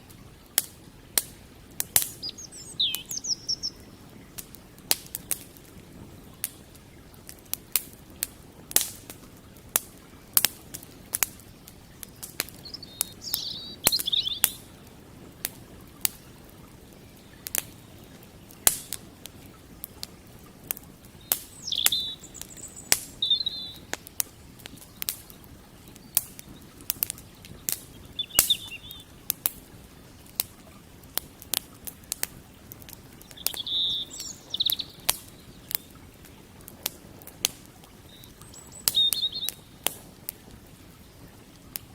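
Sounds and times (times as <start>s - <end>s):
campfire crackling: 0.0s - 41.9s
small bird chirping: 2.0s - 4.0s, 12.0s - 14.7s, 21.2s - 26.8s, 27.4s - 29.1s, 33.2s - 35.9s, 38.1s - 39.9s.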